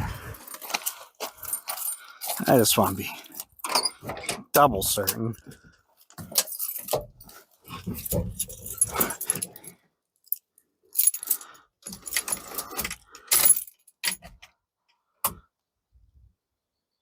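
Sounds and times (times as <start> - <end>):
keys jangling: 0.4 - 4.0, 6.2 - 14.4.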